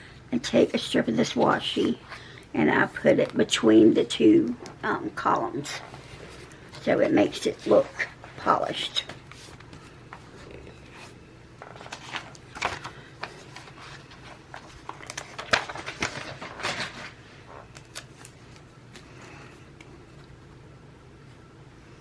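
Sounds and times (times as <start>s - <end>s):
tape and paper rustling: 10.9s - 19.2s.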